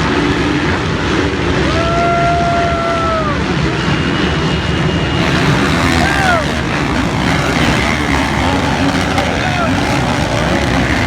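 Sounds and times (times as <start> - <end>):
motocross bike engines: 0.0 - 11.0.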